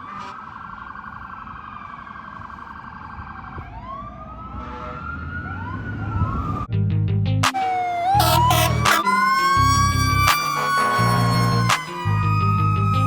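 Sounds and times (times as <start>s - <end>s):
mechanical siren wail: 7.4s - 13.0s
electronic siren warble: 7.5s - 13.0s
low air horn blasts: 8.0s - 11.9s.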